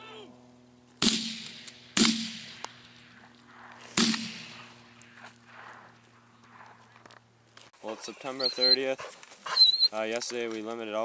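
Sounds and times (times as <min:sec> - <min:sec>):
shotgun shots: 0:01.0 - 0:06.8.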